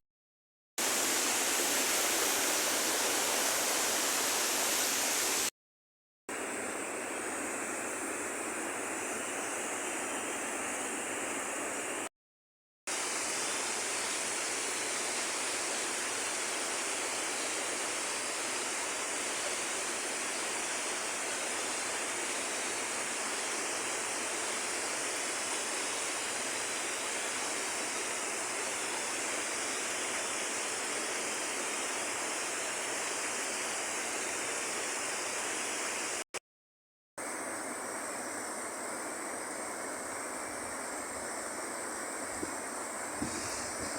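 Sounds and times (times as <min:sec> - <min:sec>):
river water rushing: 0:00.8 - 0:05.5, 0:12.9 - 0:36.2.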